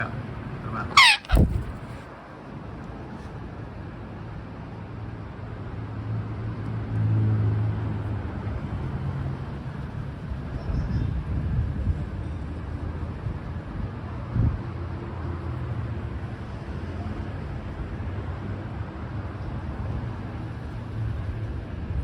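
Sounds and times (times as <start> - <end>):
parrot call: 0.9 - 1.8.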